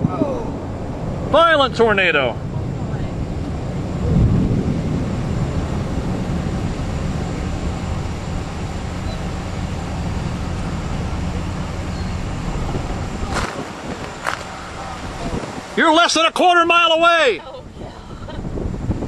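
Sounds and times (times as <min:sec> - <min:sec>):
strong wind rumbling: 0:00.0 - 0:19.0.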